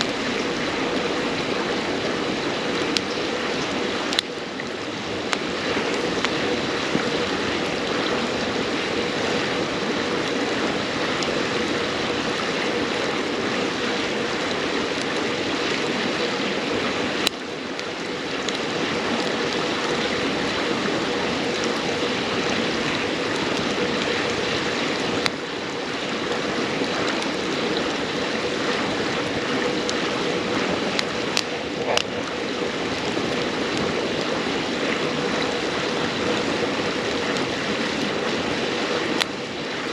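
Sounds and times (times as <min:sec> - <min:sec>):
firewood crackling: 0:00.0 - 0:39.9
river water flowing: 0:00.0 - 0:39.9.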